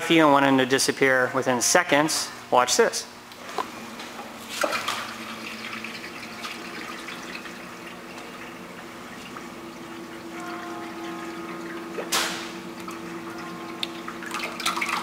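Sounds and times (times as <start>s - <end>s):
water streaming and splashing: 4.4s - 15.0s.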